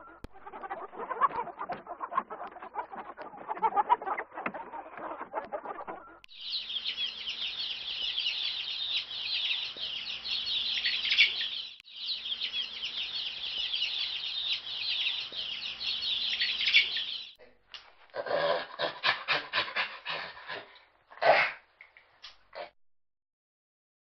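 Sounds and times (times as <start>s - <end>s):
chicks peeping: 0.0s - 17.4s.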